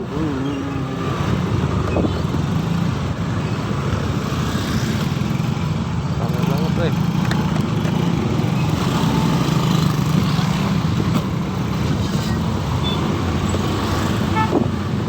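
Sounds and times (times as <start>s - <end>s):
heavy traffic: 0.0s - 15.0s
motorcycle engine: 0.0s - 15.0s
road noise: 0.0s - 15.0s.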